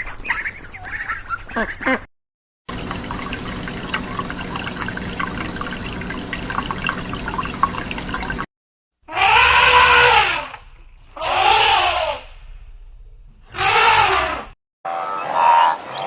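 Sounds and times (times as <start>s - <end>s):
splashing noise with clicks: 2.7s - 8.5s
loud animal calls: 9.1s - 12.5s, 13.4s - 16.0s.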